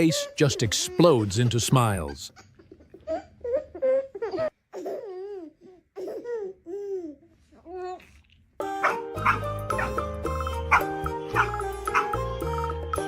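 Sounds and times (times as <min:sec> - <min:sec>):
dog whining and yowling: 0:08.8 - 0:10.1, 0:10.7 - 0:12.2.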